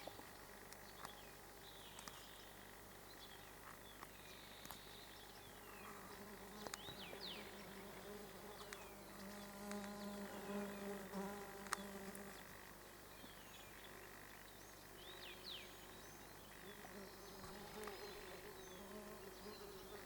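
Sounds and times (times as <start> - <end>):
flying insect buzzing: 5.9 - 12.6, 16.6 - 20.0.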